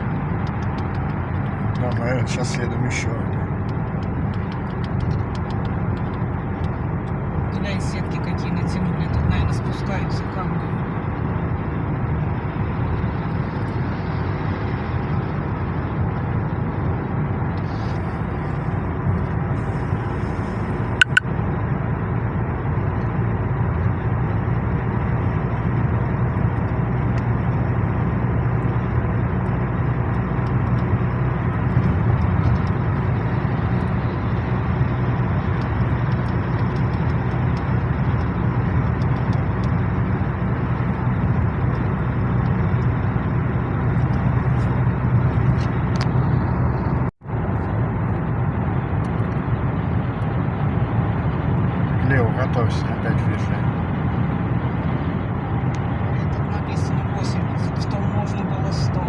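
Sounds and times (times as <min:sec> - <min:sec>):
car engine and tyre rumble: 0:00.0 - 0:59.0
short sharp click: 0:21.0 - 0:21.3.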